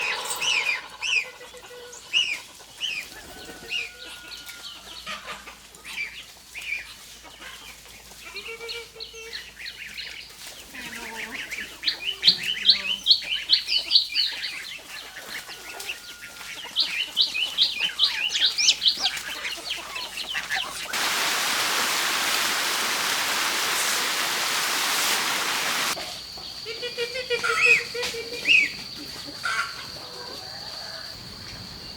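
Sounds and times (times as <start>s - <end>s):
birds chirping: 0.0s - 2.0s, 20.3s - 26.0s
poultry calls: 0.0s - 6.0s, 14.6s - 26.0s
loud even hiss: 20.9s - 26.0s.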